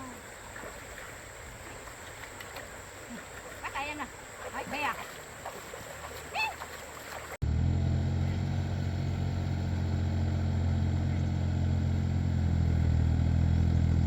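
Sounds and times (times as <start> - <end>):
tractor engine running: 7.4 - 14.0.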